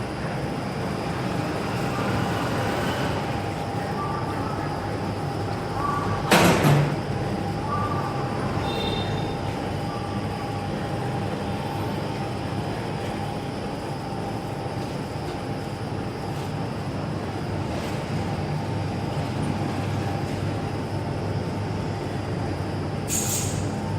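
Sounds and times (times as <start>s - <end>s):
high machine whine: 0.0s - 23.9s.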